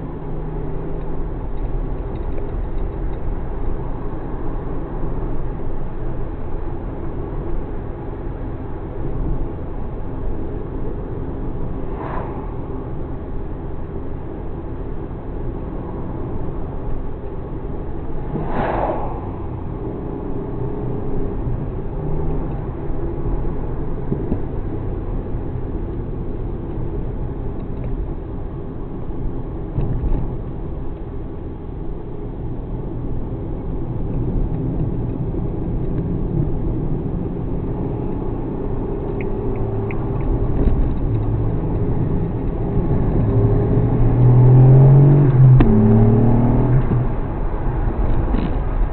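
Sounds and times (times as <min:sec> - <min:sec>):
car engine drone: 0:00.0 - 0:48.9
road rumble: 0:00.0 - 0:48.9
noisy whoosh: 0:11.6 - 0:13.8, 0:17.9 - 0:21.6.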